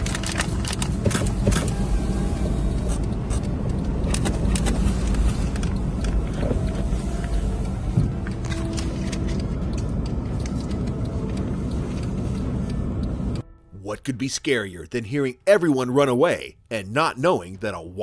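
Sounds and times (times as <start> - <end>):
vehicle engine rumbling: 0.0 - 13.4.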